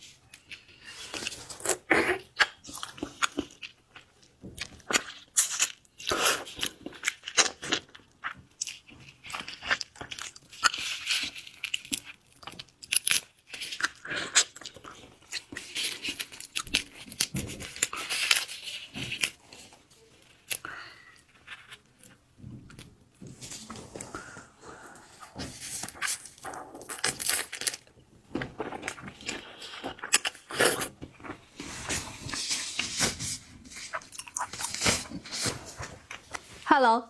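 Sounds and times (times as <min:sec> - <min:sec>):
crunching and chewing seafood: 0:00.0 - 0:36.6.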